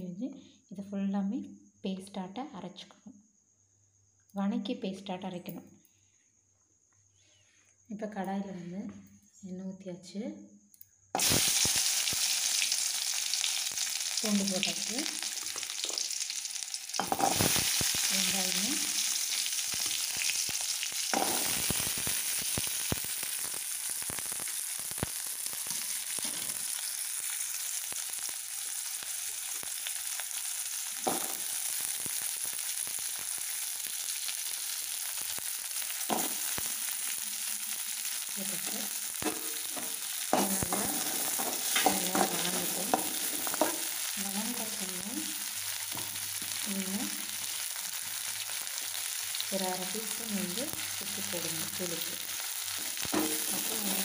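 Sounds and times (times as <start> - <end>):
food sizzling in oil: 11.2 - 54.0.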